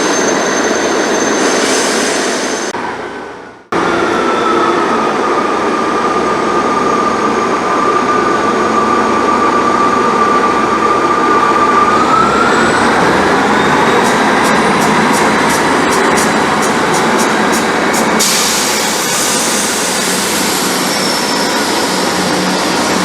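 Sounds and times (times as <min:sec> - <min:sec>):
train whine rising in pitch: 0:00.0 - 0:23.0
diesel train engine running: 0:09.1 - 0:23.0.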